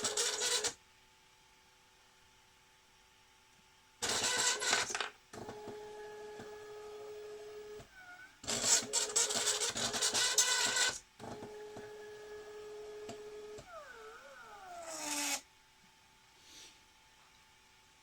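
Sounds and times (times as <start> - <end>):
stepper motor whine: 11.6 - 15.5.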